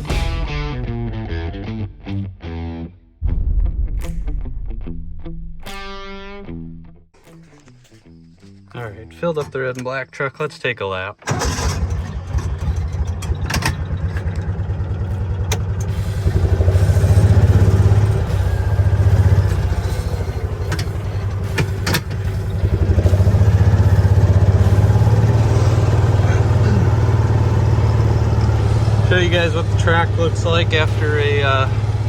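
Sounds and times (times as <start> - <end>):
truck engine running: 8.6 - 32.0
sharp knocks and rattles: 12.0 - 18.1, 19.1 - 26.0.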